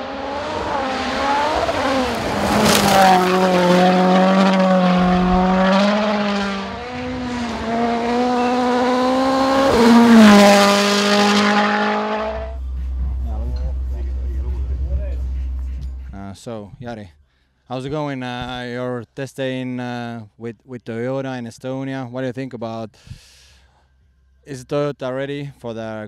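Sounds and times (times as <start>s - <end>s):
rally car engine running hard: 0.0s - 16.2s.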